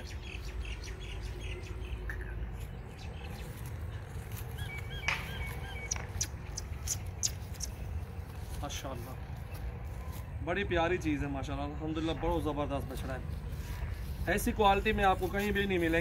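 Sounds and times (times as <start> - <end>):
small birds chirping: 0.0 - 11.1
sharp high ticks: 5.1 - 7.8.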